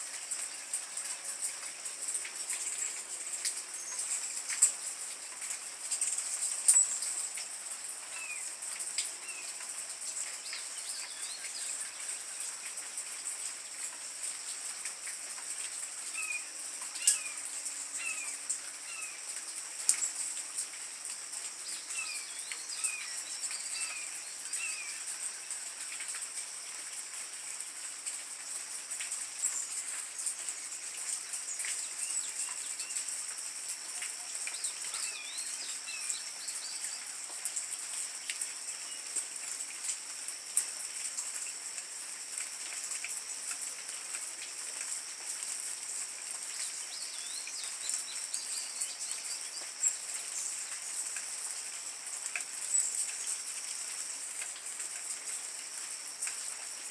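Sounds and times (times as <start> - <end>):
hummingbirds chirping: 9.2 - 12.6, 16.2 - 19.3, 21.6 - 25.6, 34.1 - 37.2, 46.5 - 51.0.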